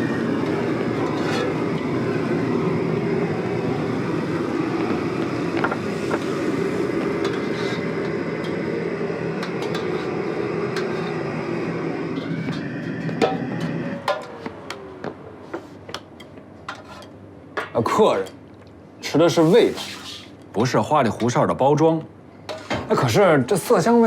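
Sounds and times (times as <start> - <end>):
loud rumbling noise: 0.0 - 15.5.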